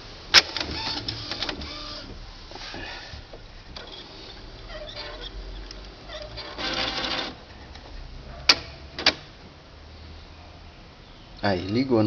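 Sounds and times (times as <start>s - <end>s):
printer motors whirring: 0.3s - 2.9s, 3.7s - 7.9s.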